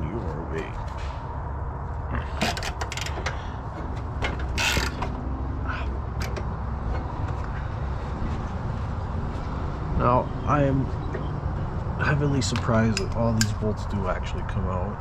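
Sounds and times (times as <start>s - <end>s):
metal tools clinking and scraping: 2.4s - 5.2s.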